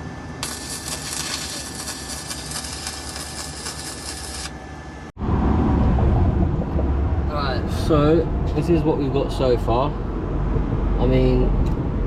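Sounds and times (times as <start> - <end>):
arc welding crackling hiss: 0.4 - 4.6
low rumble: 4.9 - 12.0.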